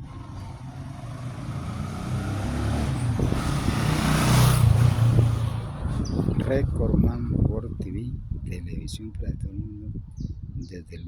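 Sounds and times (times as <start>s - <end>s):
vehicle engine passing by: 0.0s - 7.0s.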